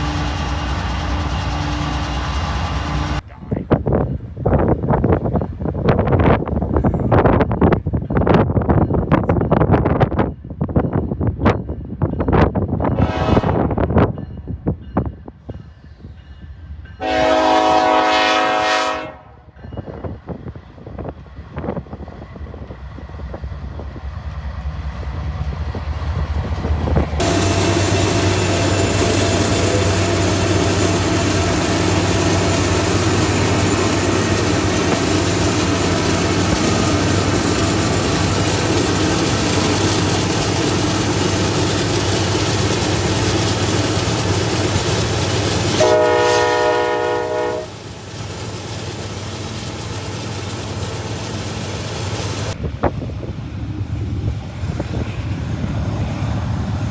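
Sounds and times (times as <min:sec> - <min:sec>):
train rumbling past: 0:00.0 - 0:56.9
train horn blast: 0:13.0 - 0:13.8, 0:17.0 - 0:19.5, 0:45.8 - 0:47.8.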